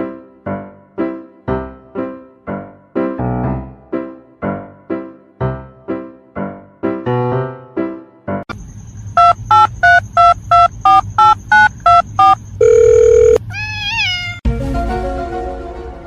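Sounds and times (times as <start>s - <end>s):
music: 0.0s - 8.4s, 14.4s - 16.0s
telephone keypad dialing beeps: 9.2s - 13.4s.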